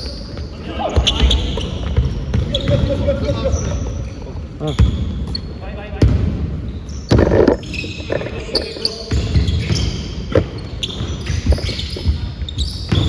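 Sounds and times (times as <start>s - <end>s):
shoe squeaks on court: 0.0s - 5.6s, 6.7s - 13.0s
basketball bouncing: 0.4s - 3.4s, 7.1s - 7.8s.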